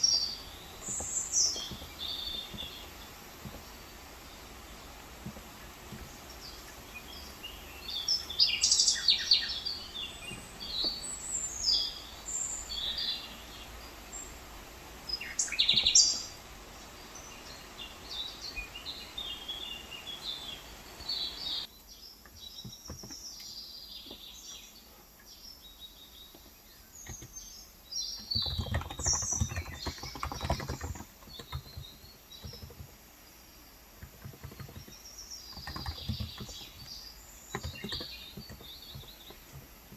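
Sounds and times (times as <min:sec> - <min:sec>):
small birds chirping: 0:00.0 - 0:39.9
keyboard typing: 0:28.4 - 0:33.0, 0:34.0 - 0:39.9.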